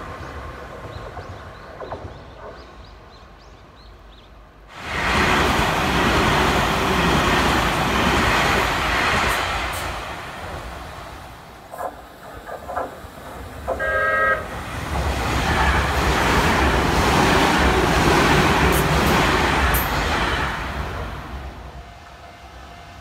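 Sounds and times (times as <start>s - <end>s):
train passing close by: 0.0s - 23.0s
train horn blast: 13.7s - 14.6s.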